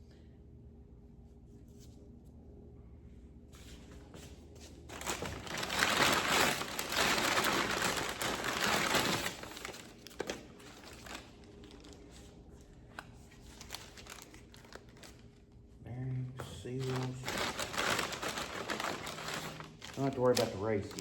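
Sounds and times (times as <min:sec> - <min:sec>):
packaging crinkling and rustling: 0:04.8 - 0:15.6, 0:16.7 - 0:21.0.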